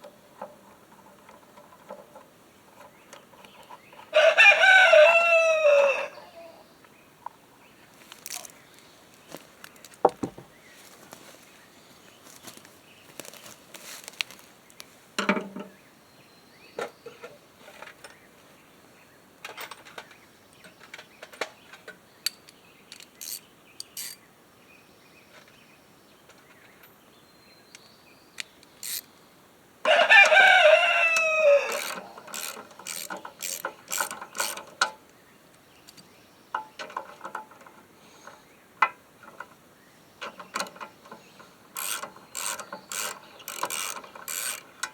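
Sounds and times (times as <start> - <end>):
rooster crowing: 4.1 - 6.6, 29.8 - 33.1
taps of tools and parts: 9.3 - 10.5, 14.1 - 15.7
socket ratchet clicking: 22.3 - 24.2, 28.4 - 29.1, 31.1 - 34.7, 41.8 - 44.9.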